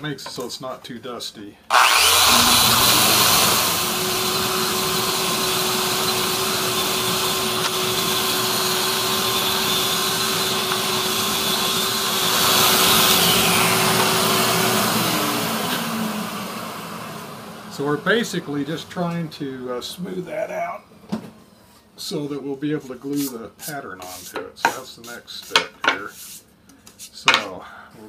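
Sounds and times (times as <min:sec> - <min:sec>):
sander whirring: 0:01.7 - 0:20.5
dust extraction vacuum: 0:01.7 - 0:20.8.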